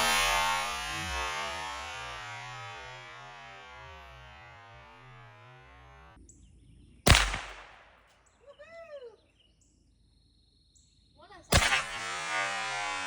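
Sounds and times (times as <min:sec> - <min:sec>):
music: 0:00.0 - 0:06.2
gunshot: 0:07.1 - 0:08.0, 0:11.5 - 0:13.0.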